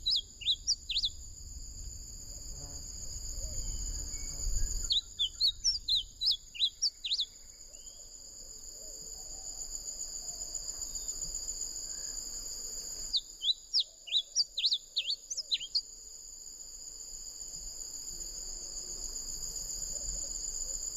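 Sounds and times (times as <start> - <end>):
high-pitched insect buzz: 0.0 - 7.9.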